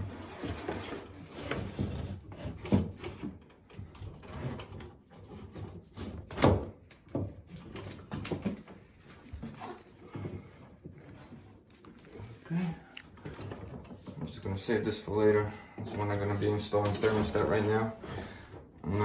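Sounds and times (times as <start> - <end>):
wire rubbing and scraping: 0.0 - 2.3.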